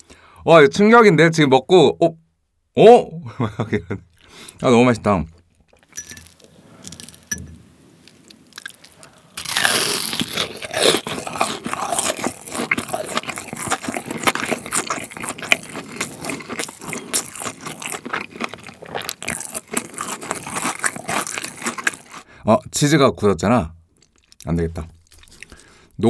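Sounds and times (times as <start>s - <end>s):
crunchy chewing: 8.0s - 22.3s, 24.0s - 26.0s
crunchy bite into cutlet: 8.6s - 22.3s.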